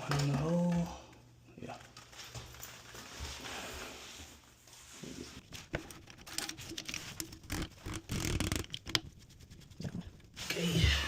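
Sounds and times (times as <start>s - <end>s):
plastic parts clicking and rustling: 5.5s - 9.0s.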